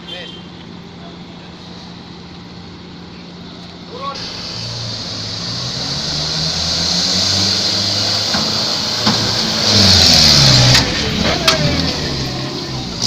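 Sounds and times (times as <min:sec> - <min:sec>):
truck engine pulling hard: 0:03.4 - 0:13.0
hiss: 0:04.2 - 0:10.3.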